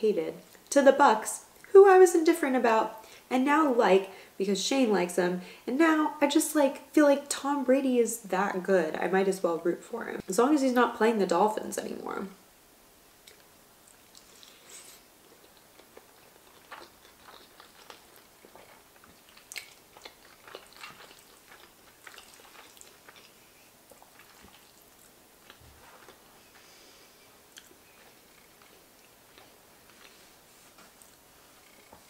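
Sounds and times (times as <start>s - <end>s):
quiet chewing with mouth clicks: 13.2s - 32.0s.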